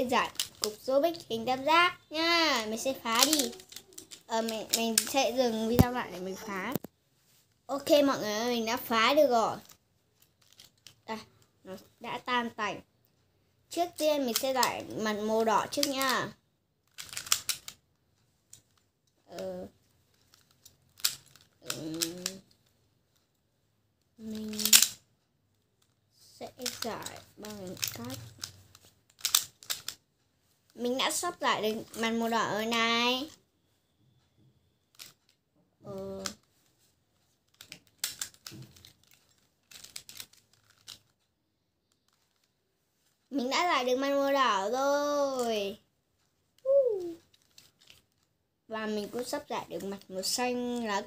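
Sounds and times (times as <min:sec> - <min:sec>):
plastic puzzle pieces clicking: 0:00.2 - 0:01.3, 0:02.6 - 0:06.0, 0:09.6 - 0:11.9, 0:13.8 - 0:14.9, 0:15.7 - 0:17.8, 0:18.5 - 0:22.6, 0:24.2 - 0:25.0, 0:25.8 - 0:30.0, 0:34.9 - 0:35.3, 0:35.9 - 0:36.5, 0:37.5 - 0:41.2, 0:41.8 - 0:42.5, 0:46.6 - 0:48.3
child humming: 0:46.7 - 0:47.2.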